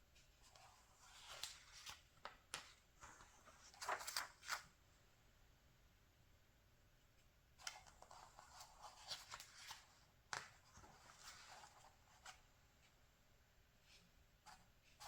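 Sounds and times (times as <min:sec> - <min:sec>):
magazine pages rustling: 0:00.5 - 0:04.7, 0:07.7 - 0:12.4.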